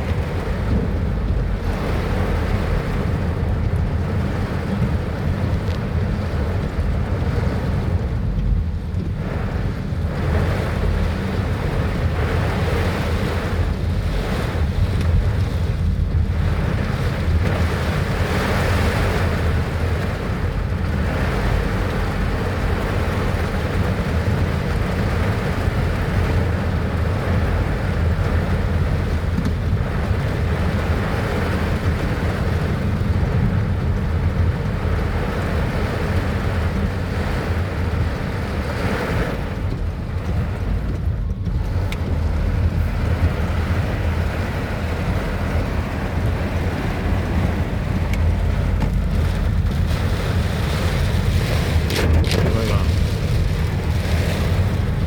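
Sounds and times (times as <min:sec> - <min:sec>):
wind buffeting microphone: 0:00.0 - 0:55.0
heavy rain hiss: 0:42.2 - 0:55.0.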